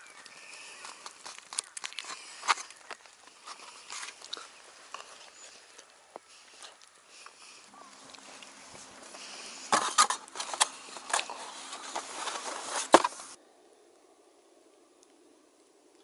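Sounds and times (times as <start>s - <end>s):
wooden box rustling: 0.1s - 5.4s, 8.2s - 13.4s.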